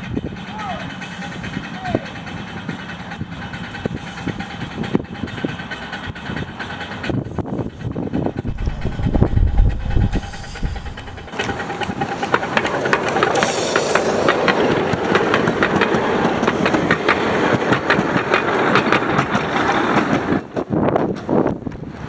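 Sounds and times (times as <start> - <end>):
brief hiss: 8.5 - 11.4.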